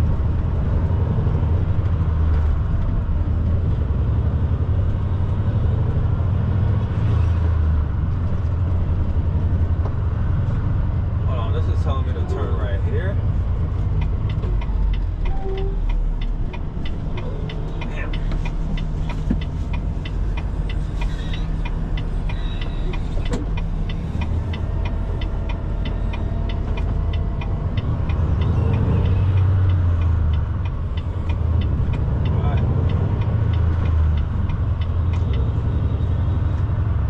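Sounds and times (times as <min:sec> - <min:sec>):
truck diesel engine running: 0:07.8 - 0:37.0
turn signal ticking: 0:11.6 - 0:37.0.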